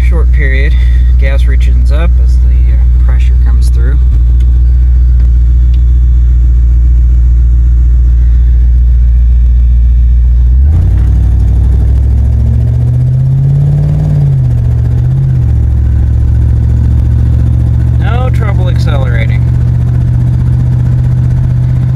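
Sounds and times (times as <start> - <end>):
truck engine idling and revving: 0.0 - 21.9.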